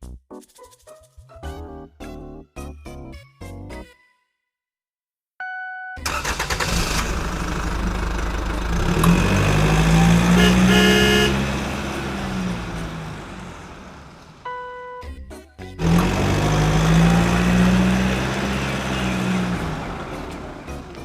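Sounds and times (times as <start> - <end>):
heavy vehicle engine running: 6.1 - 14.5, 15.8 - 21.0
short horn beep: 10.1 - 11.5.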